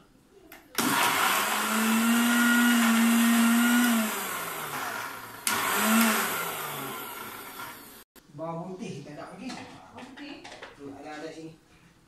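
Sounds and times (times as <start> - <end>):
electric blender running: 0.8 - 8.1.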